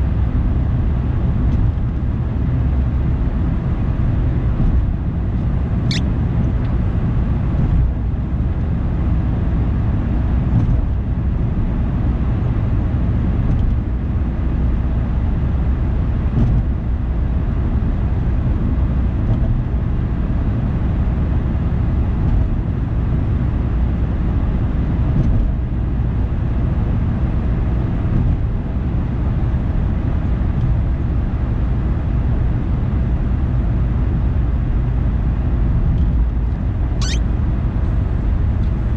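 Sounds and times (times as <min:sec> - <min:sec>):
car road and engine rumble: 0:00.0 - 0:38.9
brief high squeak: 0:05.9 - 0:06.1, 0:37.0 - 0:37.3.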